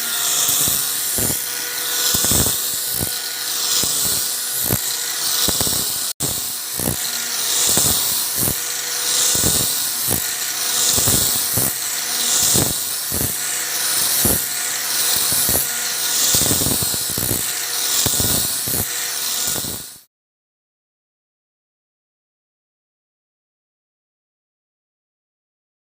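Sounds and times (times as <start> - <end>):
electric sander on wood: 0.0 - 20.1.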